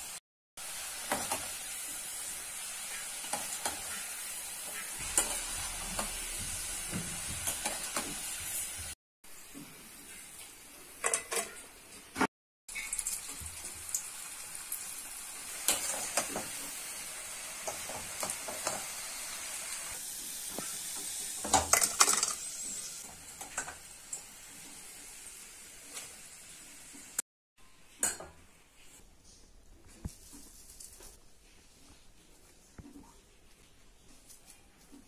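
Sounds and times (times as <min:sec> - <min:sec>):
potatoes deep-frying in oil: 0:00.0 - 0:27.2.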